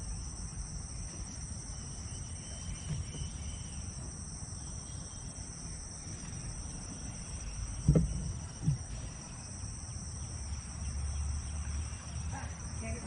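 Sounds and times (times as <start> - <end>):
crickets chirping: 0.0 - 13.0
dull thumps: 2.8 - 3.4, 7.7 - 9.2.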